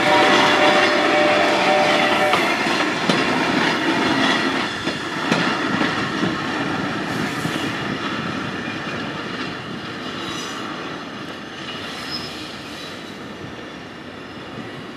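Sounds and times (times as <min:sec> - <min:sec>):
train wheels rumbling and clacking: 0:00.0 - 0:14.9
high wheel squeals: 0:11.7 - 0:14.7.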